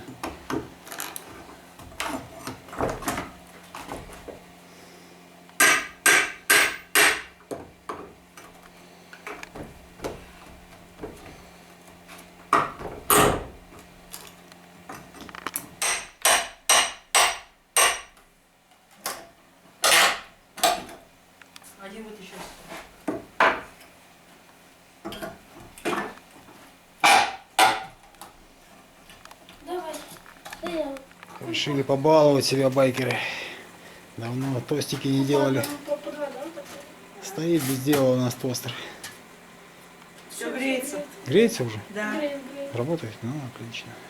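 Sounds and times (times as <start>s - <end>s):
sharp hammer strikes: 5.6s - 7.3s, 15.8s - 18.1s, 27.0s - 27.9s.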